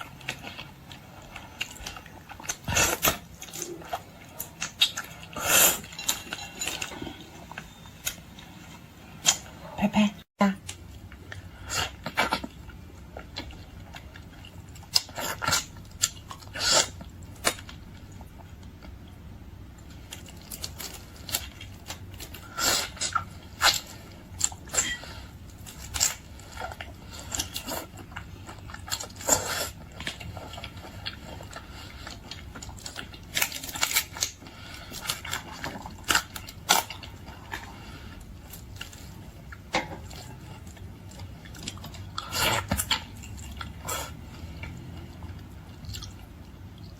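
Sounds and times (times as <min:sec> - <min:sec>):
chewing: 0:00.0 - 0:09.5, 0:19.8 - 0:46.9
crunching bites of seafood: 0:20.0 - 0:46.9.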